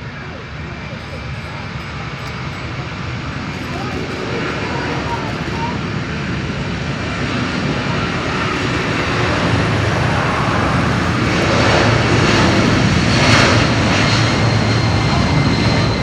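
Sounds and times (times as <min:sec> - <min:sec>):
jet engines rushing: 0:00.0 - 0:16.0
steady high whine: 0:00.0 - 0:16.0.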